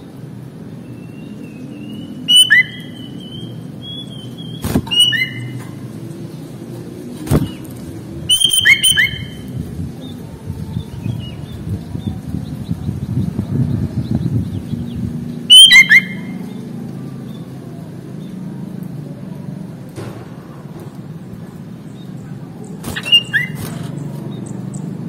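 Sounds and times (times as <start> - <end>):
bulbul whistling and chirping: 0.8 - 5.8, 8.3 - 10.2, 14.0 - 16.6, 22.6 - 25.0.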